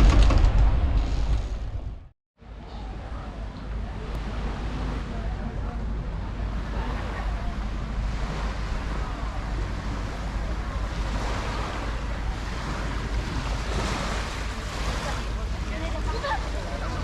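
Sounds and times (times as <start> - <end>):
small waves washing onto beach: 2.8 - 17.0
wind buffeting microphone: 2.8 - 17.0.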